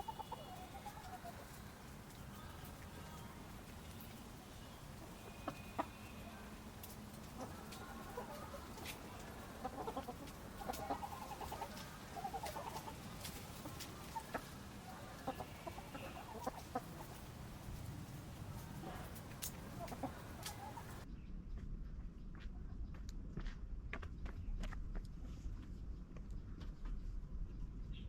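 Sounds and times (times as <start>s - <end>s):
chickens clucking: 0.0s - 21.0s
steady low rumble: 1.4s - 28.0s.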